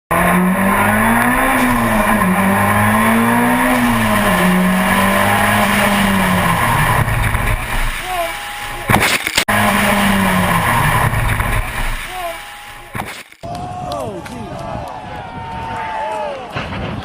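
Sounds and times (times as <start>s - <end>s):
race car engine running hard: 0.1s - 13.0s
rushing noise: 0.1s - 13.4s.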